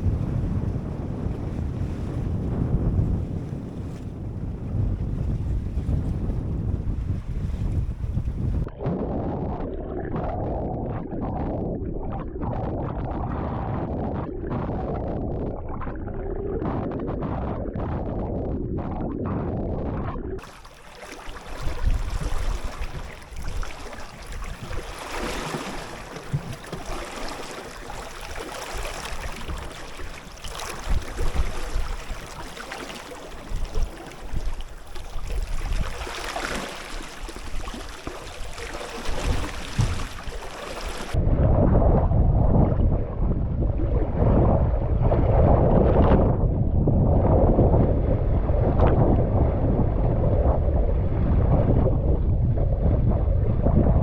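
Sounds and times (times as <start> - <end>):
wind: 0.0 - 9.6, 20.4 - 54.0
waves slapping against hull: 0.0 - 54.0
water rushing: 20.4 - 41.2.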